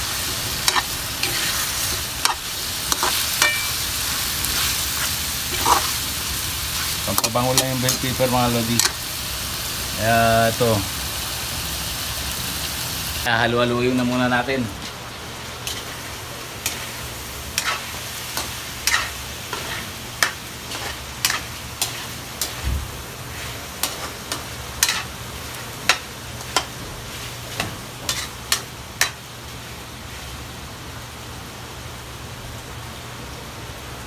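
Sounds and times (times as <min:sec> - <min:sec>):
frying sizzle: 0:00.0 - 0:34.0
spatula scraping against a wok: 0:00.6 - 0:06.0, 0:15.6 - 0:22.6, 0:23.3 - 0:25.1, 0:25.9 - 0:29.2.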